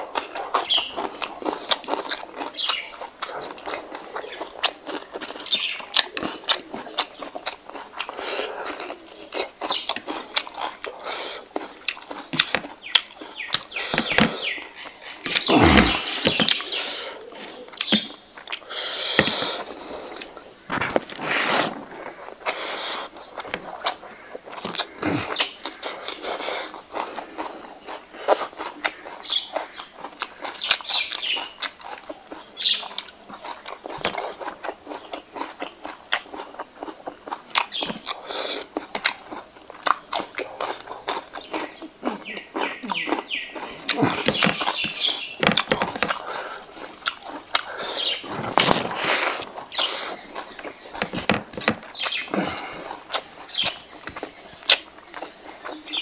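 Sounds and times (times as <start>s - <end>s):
person chewing with open mouth: 0.0s - 56.0s.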